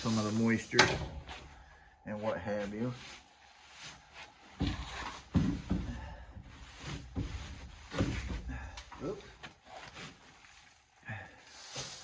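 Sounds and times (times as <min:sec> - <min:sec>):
thumps and knocks: 0:04.6 - 0:08.6.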